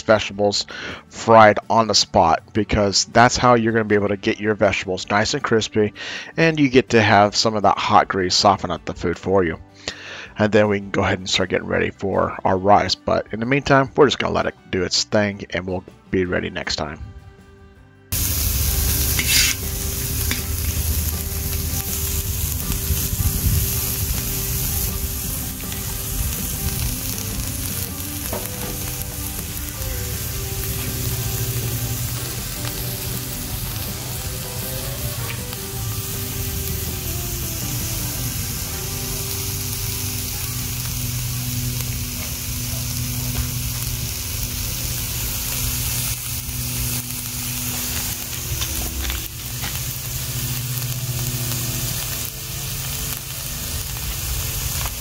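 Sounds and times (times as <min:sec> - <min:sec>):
vegetables sizzling in a wok: 0:18.1 - 0:55.0
metal spoon scraping a wok: 0:18.8 - 0:21.2.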